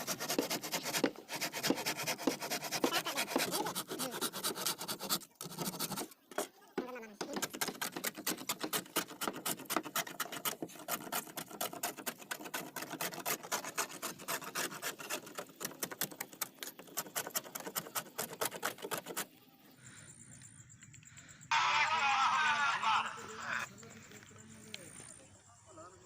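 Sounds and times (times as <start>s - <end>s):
wood being sanded by hand: 0.0s - 6.1s, 7.2s - 19.3s.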